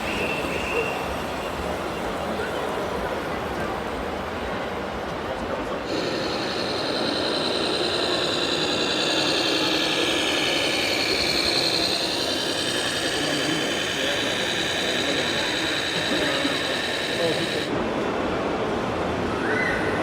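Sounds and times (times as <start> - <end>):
electric motor whine: 5.9 - 17.7.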